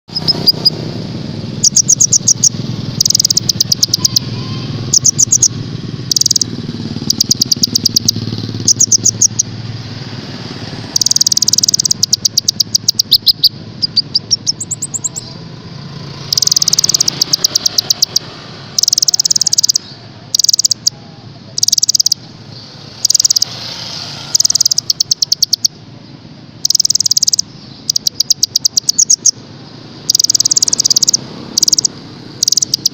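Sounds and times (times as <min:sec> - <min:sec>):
songbird singing high trills: 0:00.1 - 0:00.8, 0:01.6 - 0:09.5, 0:10.9 - 0:15.5, 0:26.6 - 0:29.4.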